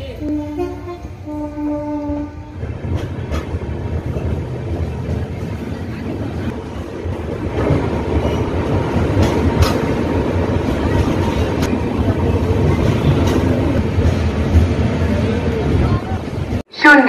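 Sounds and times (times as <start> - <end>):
train coaches rumbling: 0.0 - 17.0
wheels clicking over rails: 2.7 - 15.3.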